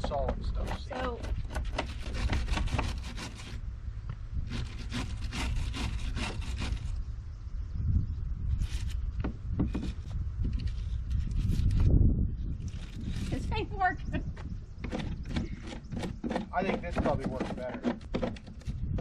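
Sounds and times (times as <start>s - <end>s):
hand scraper scraping wood: 0.0s - 3.6s, 4.5s - 7.0s, 14.8s - 19.0s.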